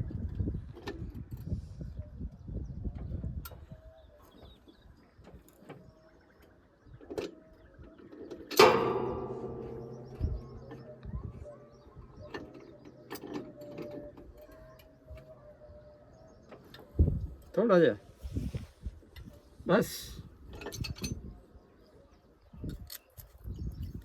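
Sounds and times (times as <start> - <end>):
metal tools clicking and clinking: 8.5 - 15.3
loud metallic clang ringing: 8.6 - 14.2.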